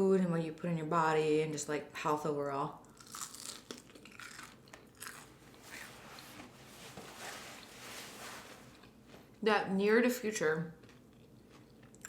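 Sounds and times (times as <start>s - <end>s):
person chewing crunchy food: 2.8s - 6.3s, 10.8s - 12.0s.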